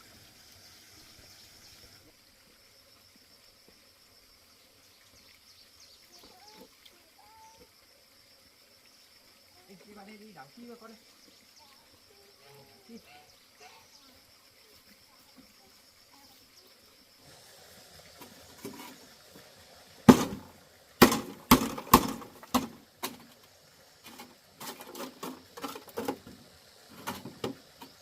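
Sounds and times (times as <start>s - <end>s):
sharp knocks and impacts: 20.1s - 23.3s.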